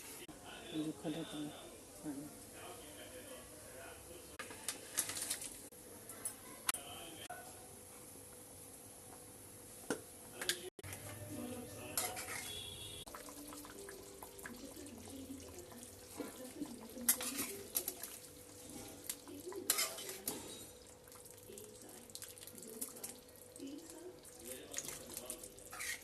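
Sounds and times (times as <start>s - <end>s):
cookware and utensils clattering: 4.4s - 6.8s, 9.9s - 21.2s, 24.4s - 26.0s.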